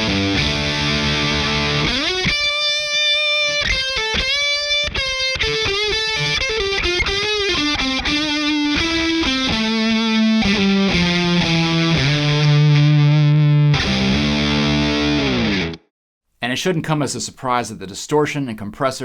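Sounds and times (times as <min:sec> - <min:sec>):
distorted electric guitar lead: 0:00.0 - 0:15.9.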